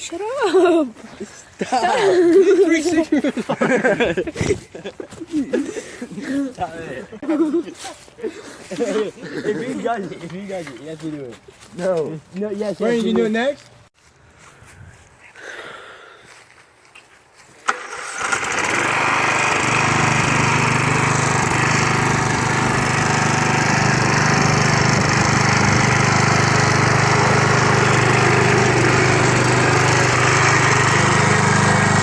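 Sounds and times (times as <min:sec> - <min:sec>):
lawn mower engine running: 0:17.6 - 0:32.0.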